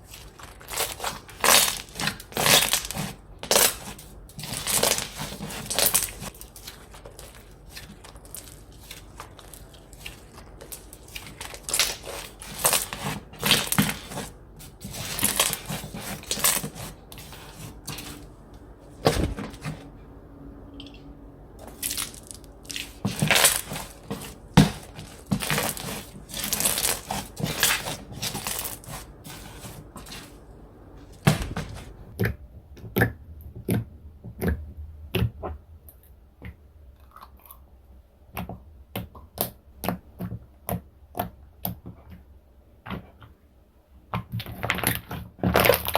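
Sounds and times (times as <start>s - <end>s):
slime crunching and crackling: 0.0s - 18.2s, 21.6s - 30.4s, 44.6s - 45.9s.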